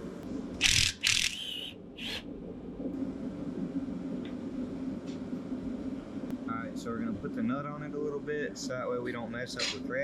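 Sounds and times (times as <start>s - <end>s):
low hum: 0.0s - 10.0s
pneumatic tool bursts: 0.6s - 1.4s.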